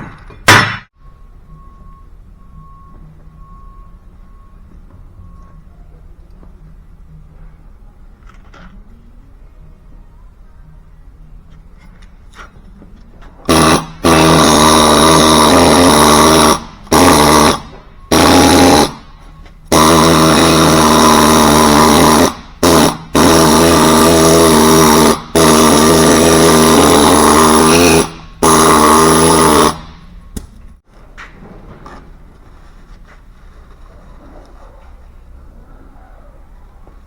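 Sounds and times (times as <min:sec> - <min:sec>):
power tool whining: 0:13.4 - 0:30.4.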